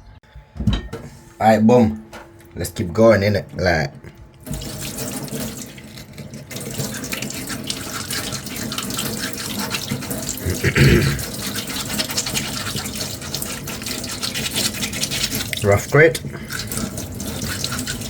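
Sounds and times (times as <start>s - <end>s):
sandpaper rasping: 11.5s - 15.6s.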